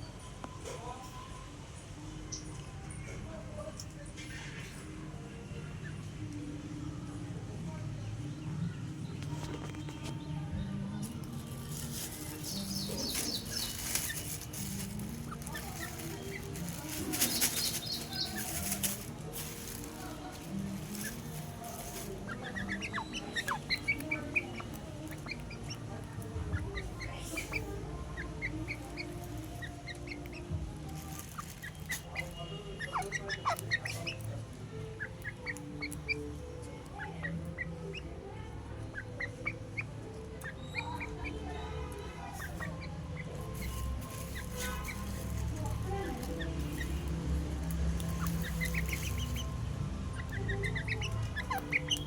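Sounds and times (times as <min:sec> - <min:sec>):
birds chirping: 0:00.0 - 0:52.0
birds flapping wings: 0:11.3 - 0:22.7, 0:47.9 - 0:49.4
high bird chirps: 0:11.4 - 0:19.0, 0:20.8 - 0:25.9, 0:38.9 - 0:47.2, 0:48.0 - 0:52.0.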